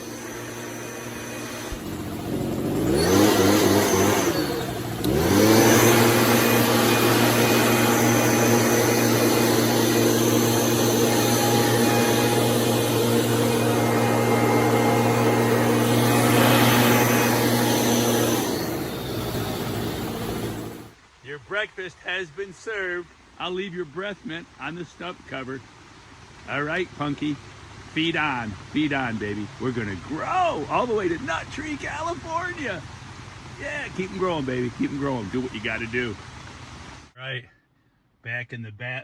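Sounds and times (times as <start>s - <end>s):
sprayer motor whining: 0.0s - 20.9s.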